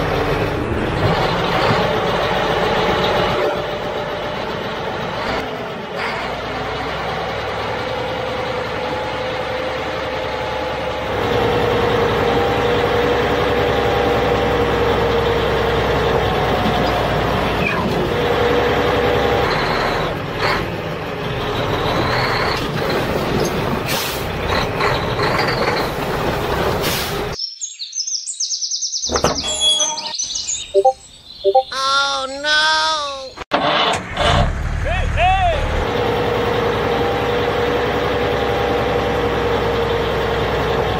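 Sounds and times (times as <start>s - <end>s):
heavy truck engine running: 0.0s - 27.4s, 33.5s - 40.9s
air brake hisses: 26.8s - 27.3s.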